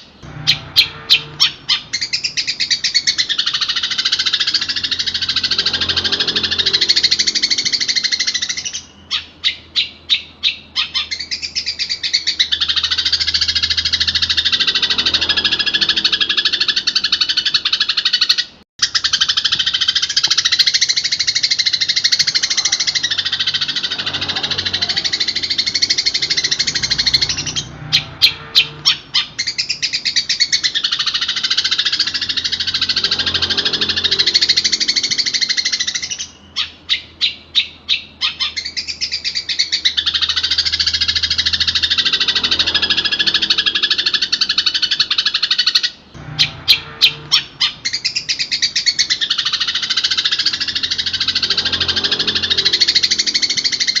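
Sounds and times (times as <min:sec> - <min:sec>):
shrike singing high chattering song: 0:00.0 - 0:18.2, 0:18.9 - 0:54.0.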